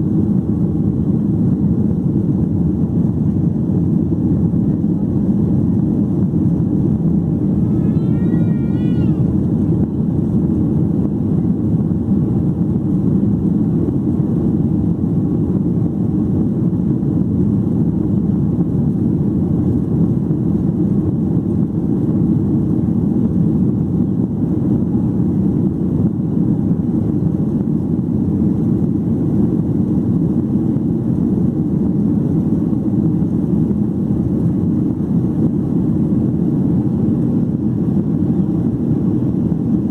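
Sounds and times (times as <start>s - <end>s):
airplane cabin engine rumble: 0.0s - 39.9s
wavering high tone: 7.5s - 9.3s.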